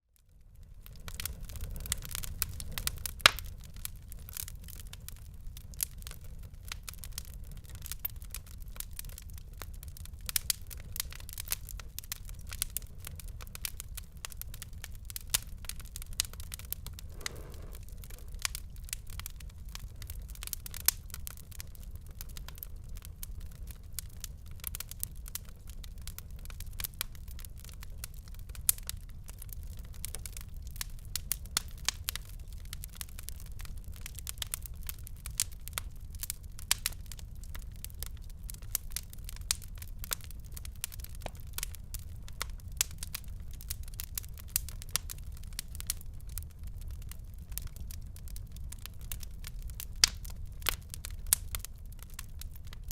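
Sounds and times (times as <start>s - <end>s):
wood fire crackling: 0.2s - 52.9s.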